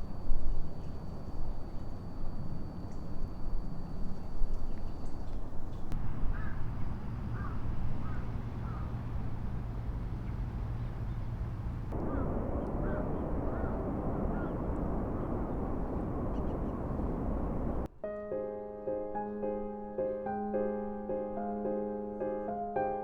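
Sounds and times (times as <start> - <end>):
rush of wind or traffic: 5.9 - 17.9
birds calling: 6.0 - 17.9.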